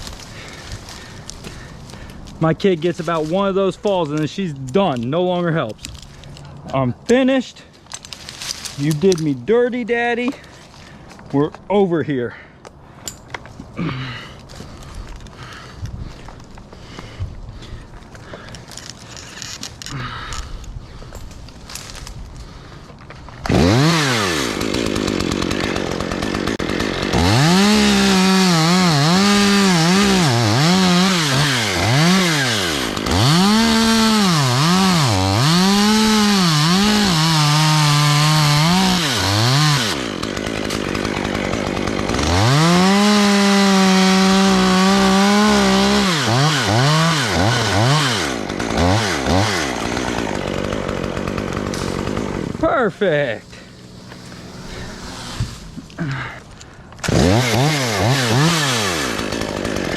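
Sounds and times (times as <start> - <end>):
chainsaw revving: 23.4 - 59.9.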